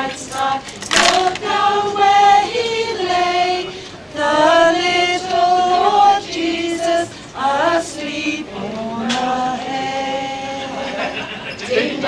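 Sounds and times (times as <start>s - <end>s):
group singing a carol: 0.0s - 12.0s.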